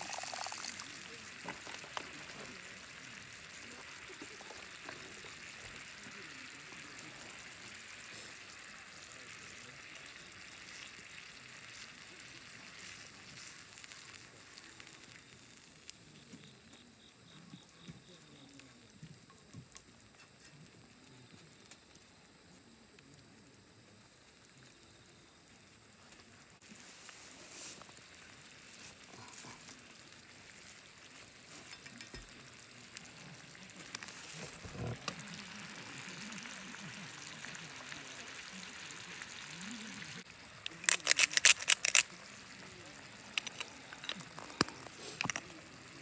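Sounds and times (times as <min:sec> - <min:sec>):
mushrooms and onions sizzling: 0:00.0 - 0:46.0
chopsticks clicking: 0:40.8 - 0:42.0.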